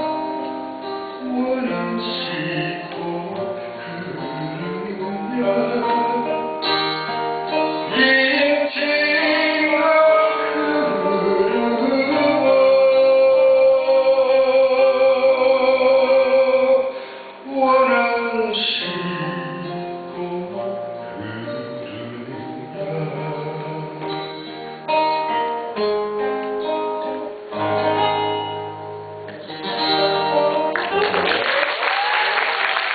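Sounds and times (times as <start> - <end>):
plucked acoustic guitar: 0.0 - 31.2
audience applause: 30.7 - 32.9.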